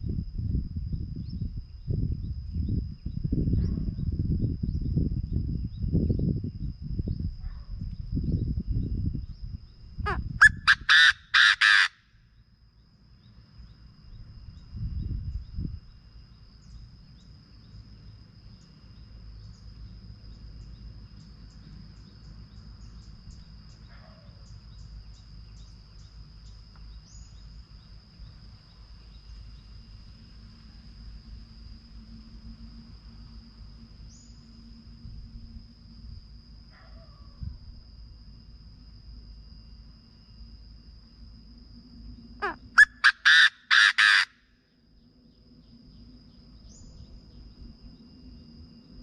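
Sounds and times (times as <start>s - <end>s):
faint high whine: 0.0s - 49.0s
bird harsh call: 10.1s - 12.0s, 42.4s - 44.4s.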